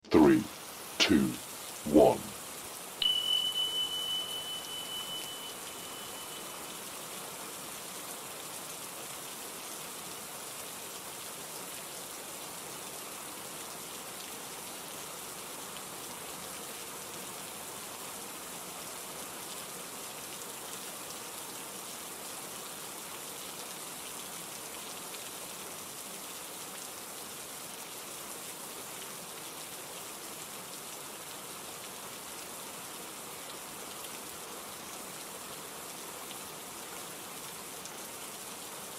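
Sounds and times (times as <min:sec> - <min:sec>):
steady rain falling: 0:00.1 - 0:38.9
high beep: 0:03.0 - 0:06.6.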